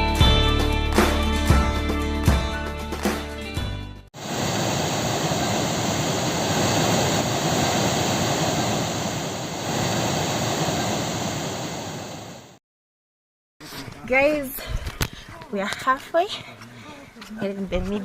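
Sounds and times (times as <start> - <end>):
rushing falling water: 4.2 - 12.6.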